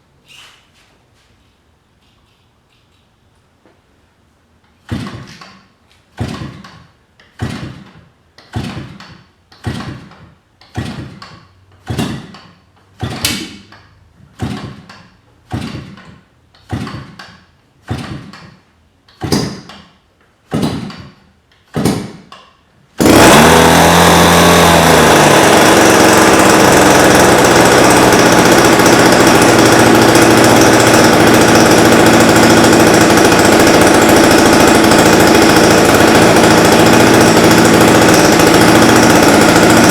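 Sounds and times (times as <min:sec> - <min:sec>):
model airplane engine running: 0:23.0 - 0:39.9.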